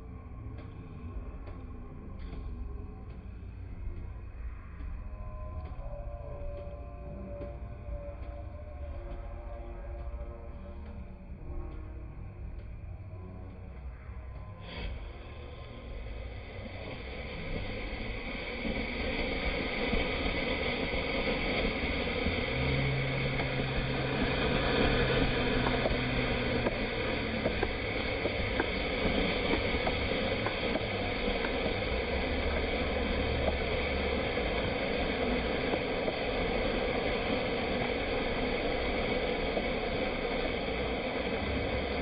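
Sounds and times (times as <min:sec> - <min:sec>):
fountain firework hissing: 0:14.6 - 0:42.0.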